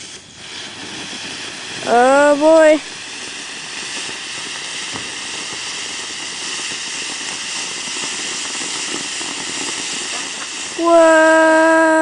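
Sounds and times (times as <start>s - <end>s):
firework fountain hissing: 0.0s - 12.0s.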